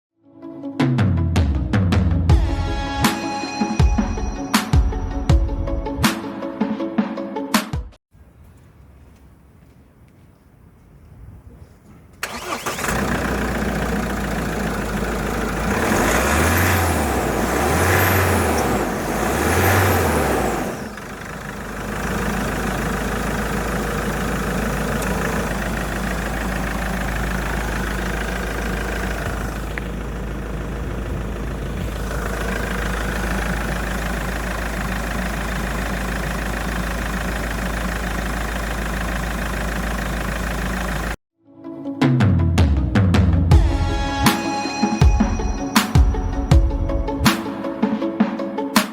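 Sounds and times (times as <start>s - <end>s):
diesel engine starting and revving: 12.2s - 41.2s.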